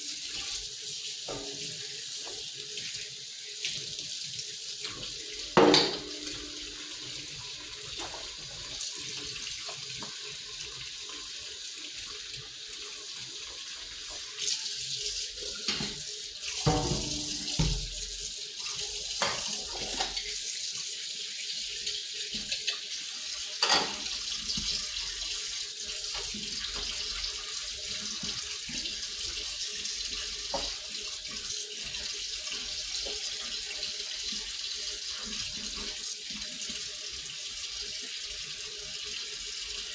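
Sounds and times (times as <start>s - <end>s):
tap water running into sink: 0.2s - 39.9s.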